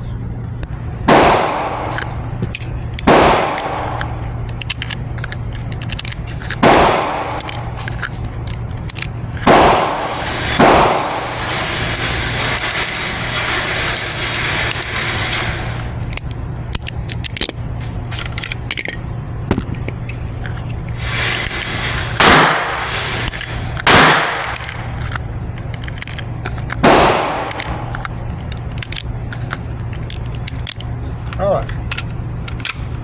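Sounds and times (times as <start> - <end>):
steady low hum: 0.0 - 33.0
gunshots with echo: 1.0 - 2.3, 3.0 - 4.2, 6.6 - 7.8, 9.4 - 13.6, 21.9 - 23.2, 23.8 - 24.6, 26.8 - 28.0.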